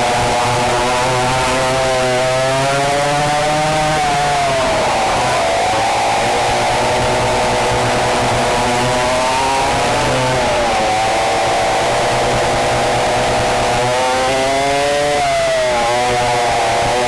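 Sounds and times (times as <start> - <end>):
two-stroke kart engines revving: 0.0 - 17.0.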